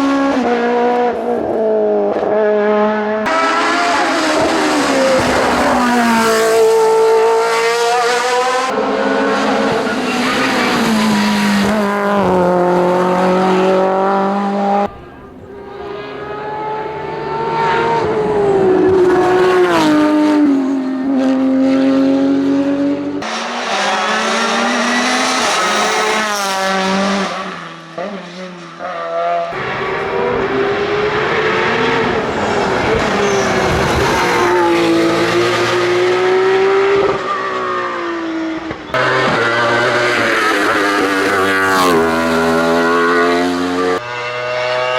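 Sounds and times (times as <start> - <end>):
race car engines screaming: 3.2 - 21.1, 23.2 - 44.9.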